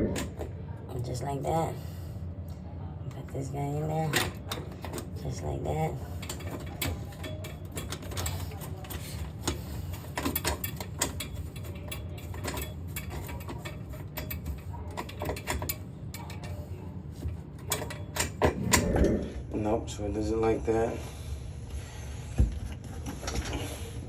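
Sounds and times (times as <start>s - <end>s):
low hum: 15.8s - 24.0s.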